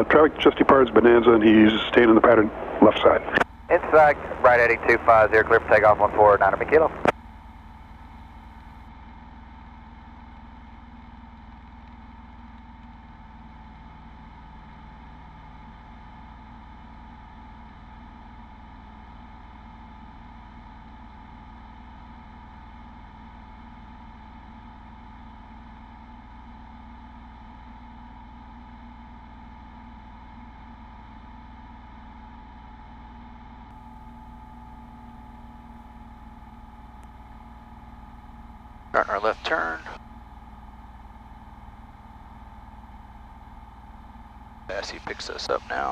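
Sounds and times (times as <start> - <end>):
airplane piston engine drone: 0.0 - 8.8, 33.7 - 45.9.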